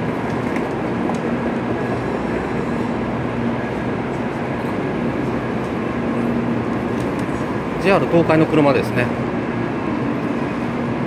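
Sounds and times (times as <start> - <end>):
train equipment running: 0.0 - 11.0.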